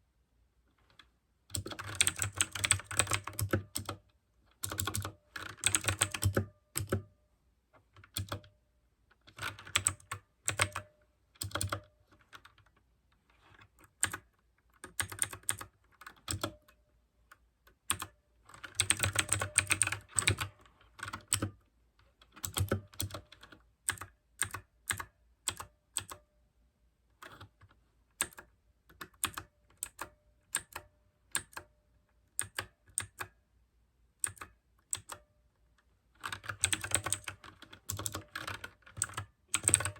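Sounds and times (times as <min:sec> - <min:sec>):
mechanical keyboard typing: 0:01.5 - 0:07.1, 0:08.0 - 0:08.6, 0:09.2 - 0:12.7, 0:13.7 - 0:16.8, 0:17.7 - 0:21.6, 0:22.2 - 0:26.3, 0:27.2 - 0:31.7, 0:32.3 - 0:33.4, 0:34.2 - 0:35.3, 0:36.2 - 0:39.9.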